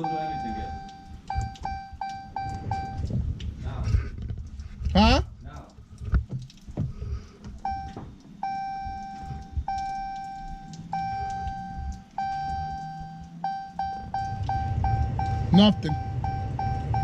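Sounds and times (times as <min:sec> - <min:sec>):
dashboard warning chime: 0:00.0 - 0:03.1, 0:07.6 - 0:17.0.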